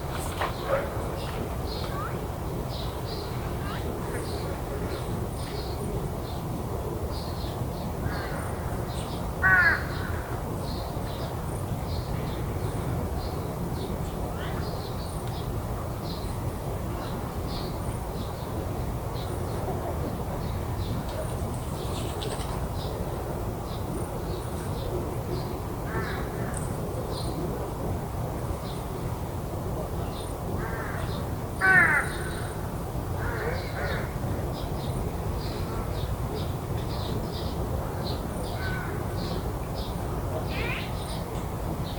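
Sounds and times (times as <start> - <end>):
crow cawing: 9.4 - 10.2, 31.6 - 32.4.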